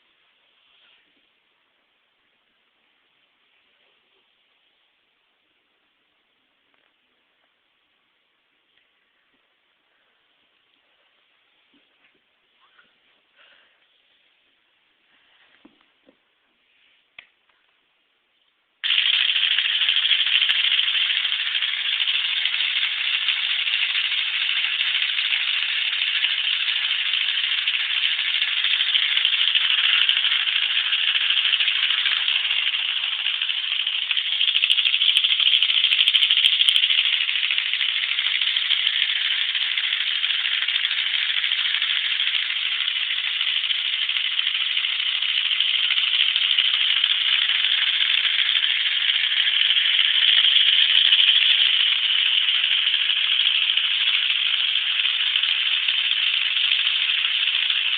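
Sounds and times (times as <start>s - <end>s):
plastic model engine rattling: 18.8s - 57.9s.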